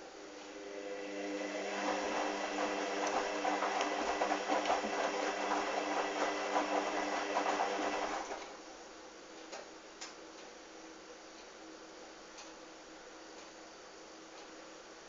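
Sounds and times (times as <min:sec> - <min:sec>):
washing machine motor humming: 0:00.0 - 0:08.6.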